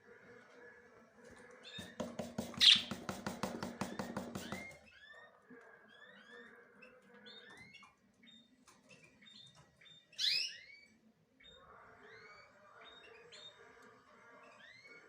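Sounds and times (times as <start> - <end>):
small birds chirping: 1.3 - 15.0.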